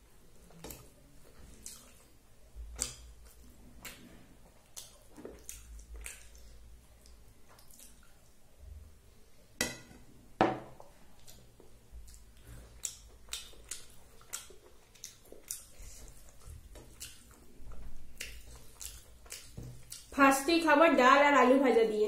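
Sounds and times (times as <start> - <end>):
fingers mixing rice wet squishes: 0.0 - 8.4, 11.1 - 20.2.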